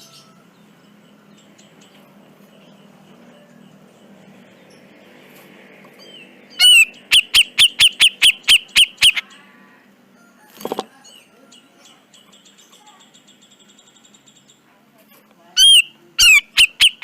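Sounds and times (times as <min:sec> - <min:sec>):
bird calling: 0:05.9 - 0:09.9, 0:15.5 - 0:17.0.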